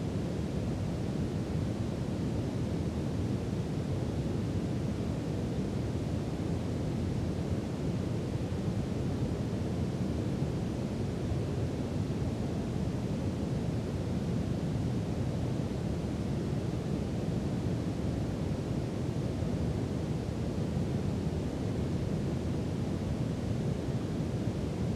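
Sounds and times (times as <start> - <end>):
brown noise hiss: 0.0 - 24.9.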